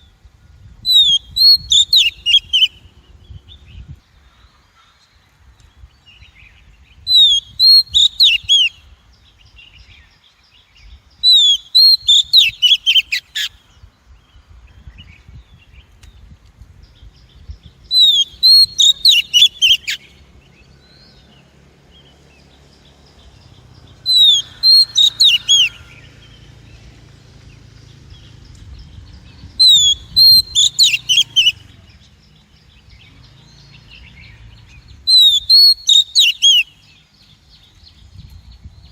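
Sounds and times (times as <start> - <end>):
bird whistled calls: 0.9 - 2.8, 7.1 - 8.8, 11.2 - 13.6, 17.9 - 20.1, 24.1 - 26.2, 29.5 - 31.7, 35.1 - 36.9.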